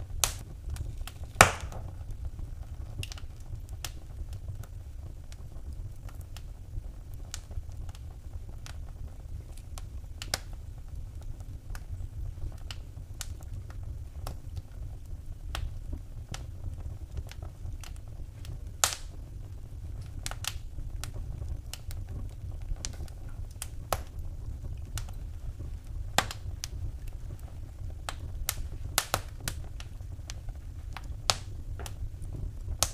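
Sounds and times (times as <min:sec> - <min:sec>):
wood fire crackling: 0:00.0 - 0:32.9.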